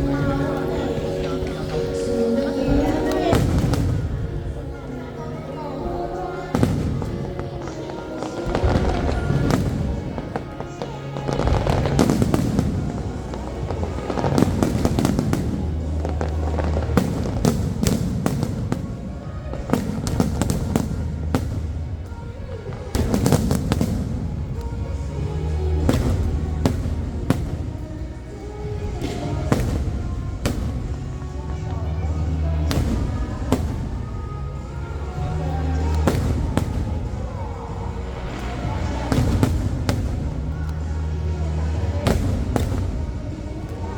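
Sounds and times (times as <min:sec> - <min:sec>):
fireworks bursting: 0:00.0 - 0:43.9
show music: 0:00.0 - 0:43.9.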